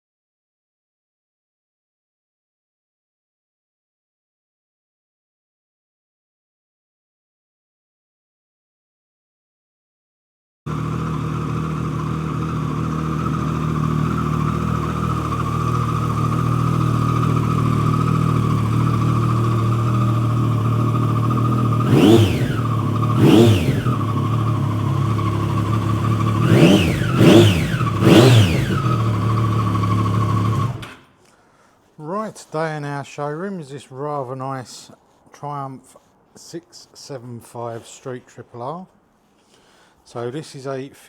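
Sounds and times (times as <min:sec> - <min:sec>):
motorcycle engine idling and revving: 0:10.7 - 0:31.0.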